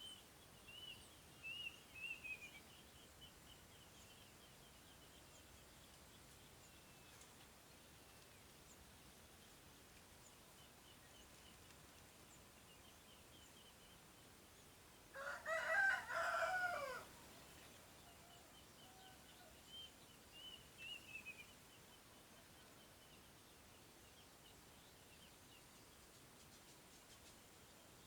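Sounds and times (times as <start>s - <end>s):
small birds chirping: 0.0s - 28.0s
rooster crowing: 15.2s - 17.1s.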